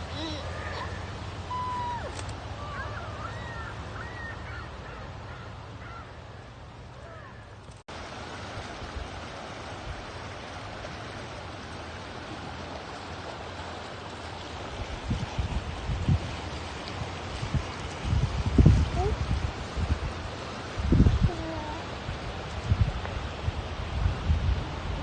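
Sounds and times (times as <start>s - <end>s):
flowing water rushing: 0.0s - 25.0s.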